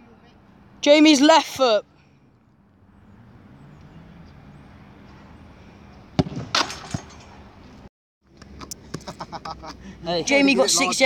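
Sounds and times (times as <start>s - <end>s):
faint outdoor background noise: 0.0s - 11.0s
football kick: 6.2s - 7.1s.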